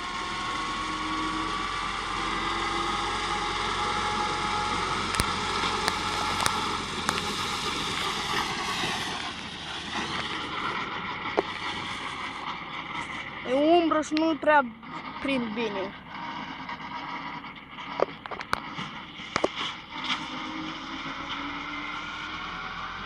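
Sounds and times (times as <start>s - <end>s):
tractor engine under load: 0.0s - 23.0s.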